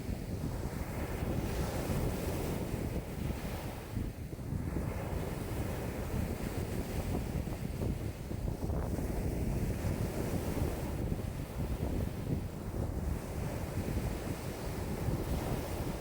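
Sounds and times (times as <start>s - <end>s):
wind buffeting microphone: 0.0s - 16.0s
lake waves washing: 4.6s - 16.0s.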